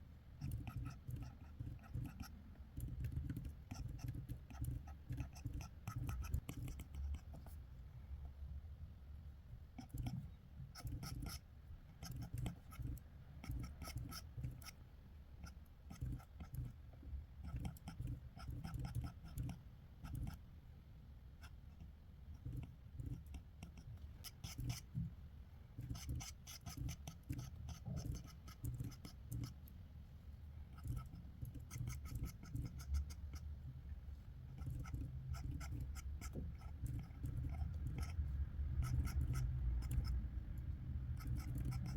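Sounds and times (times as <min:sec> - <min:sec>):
pencil strokes scratching on paper: 0:12.0 - 0:14.8, 0:25.8 - 0:29.6, 0:30.8 - 0:33.4, 0:34.5 - 0:40.2.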